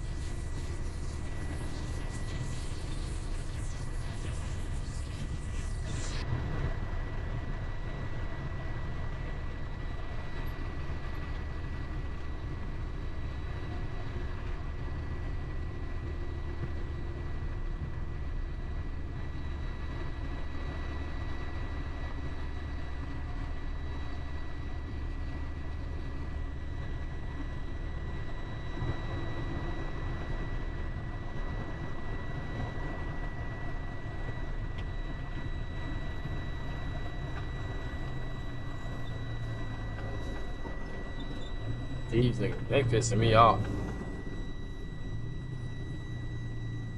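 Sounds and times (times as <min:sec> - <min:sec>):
truck engine and road rumble: 0:00.0 - 0:46.9
thin high-pitched tone: 0:37.3 - 0:46.9.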